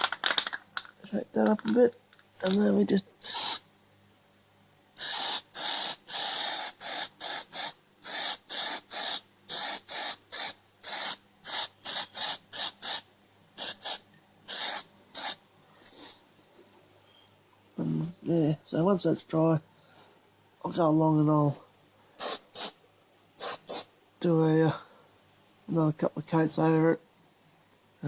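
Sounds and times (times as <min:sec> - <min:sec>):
aerosol spray can hissing: 0:03.2 - 0:03.6, 0:05.0 - 0:15.4, 0:22.2 - 0:22.8, 0:23.4 - 0:23.9.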